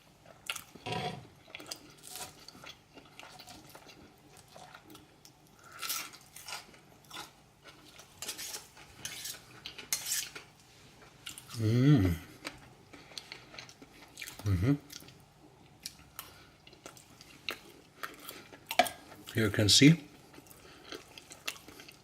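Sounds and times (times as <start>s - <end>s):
person chewing food: 0.1s - 19.3s, 20.1s - 22.0s.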